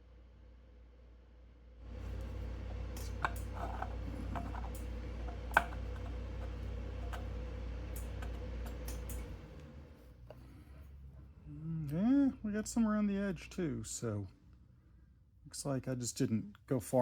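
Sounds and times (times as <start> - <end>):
motor hum: 1.9 - 12.1
brake disc rubbing: 2.0 - 9.4.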